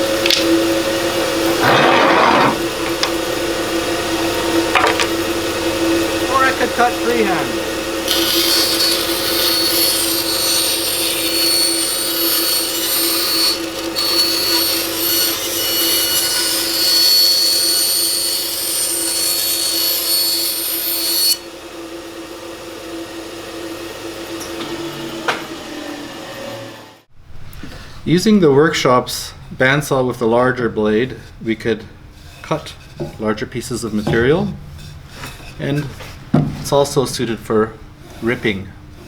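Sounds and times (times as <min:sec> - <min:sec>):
bandsaw motor humming: 0:00.7 - 0:22.2
bandsaw blade whining in cut: 0:01.3 - 0:02.8, 0:08.0 - 0:21.6.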